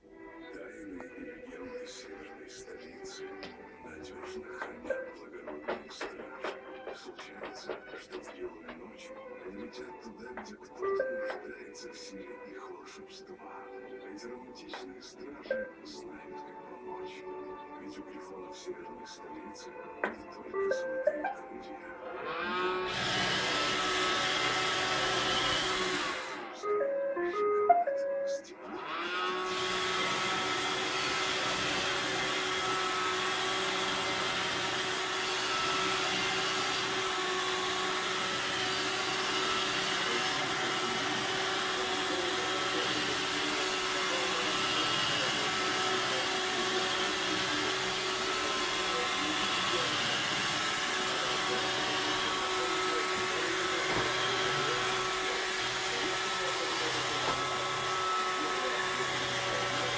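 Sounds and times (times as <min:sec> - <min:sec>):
robot vacuum cleaner whirring: 0:02.0 - 0:08.9, 0:21.9 - 0:27.6, 0:28.6 - 0:59.9.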